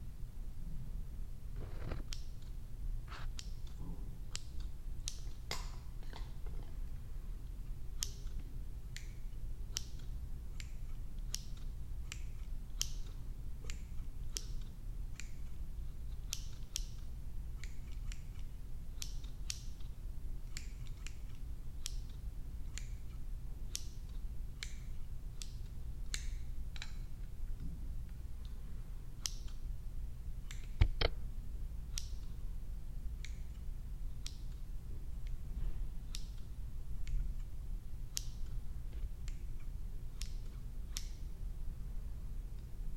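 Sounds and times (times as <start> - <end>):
steady low hum: 0.0 - 42.9
scissors snipping hair: 2.0 - 6.0, 7.9 - 27.2, 29.2 - 29.7, 36.0 - 41.3.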